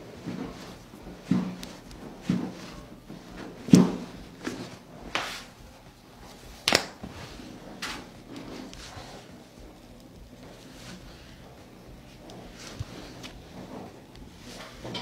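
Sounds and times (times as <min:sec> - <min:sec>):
chiropractic joint cracks: 0:06.5 - 0:07.1.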